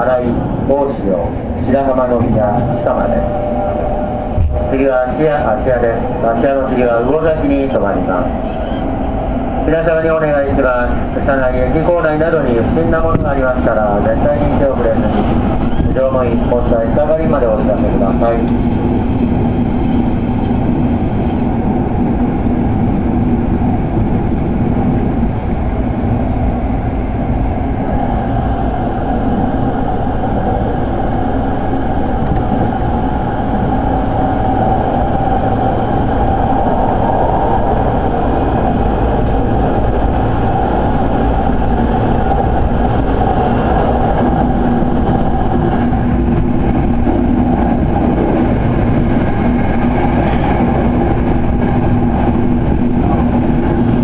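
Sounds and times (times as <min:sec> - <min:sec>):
train hum: 0:00.0 - 0:54.0
train wheels rumbling on rail: 0:00.0 - 0:54.0.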